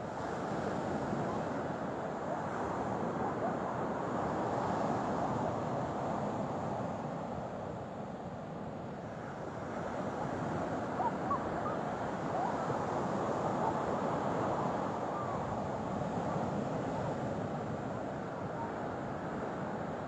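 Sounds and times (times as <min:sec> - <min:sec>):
faint chirp-like whistles: 0:10.9 - 0:15.6.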